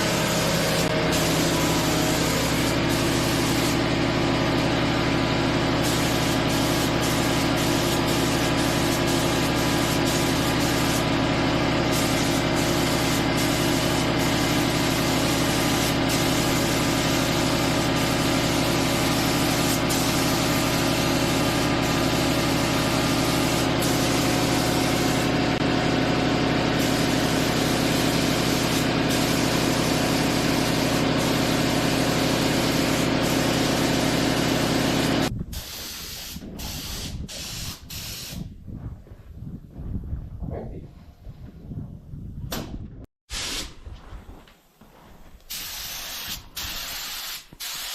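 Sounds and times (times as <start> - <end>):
motor humming steadily: 0.0 - 35.3.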